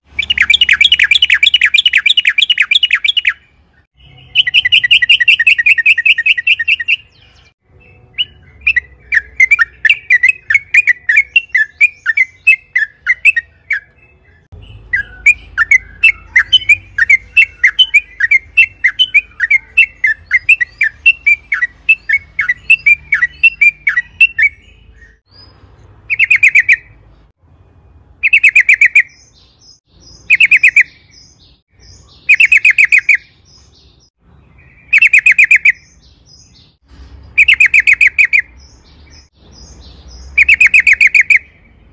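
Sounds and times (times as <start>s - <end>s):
bird singing: 0.0s - 27.3s, 28.2s - 41.9s.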